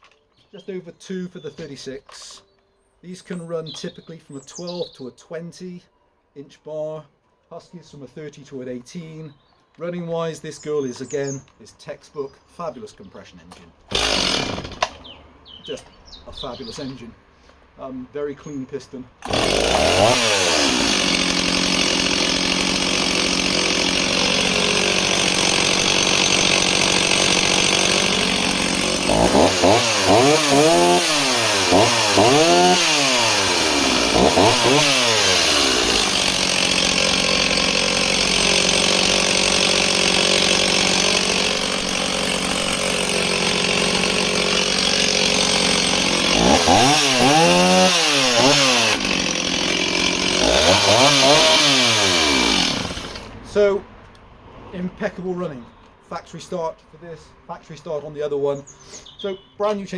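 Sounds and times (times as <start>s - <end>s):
chainsaw engine idling and revving: 13.5s - 17.1s, 19.2s - 54.2s.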